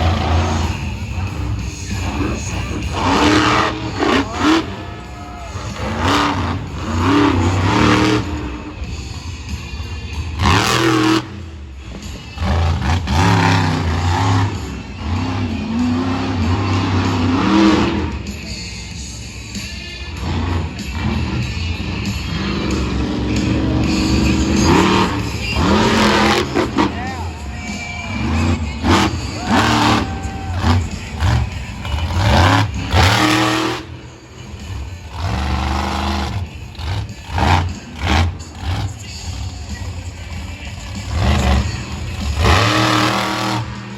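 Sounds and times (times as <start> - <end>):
monster truck engine revving: 0.0 - 43.9.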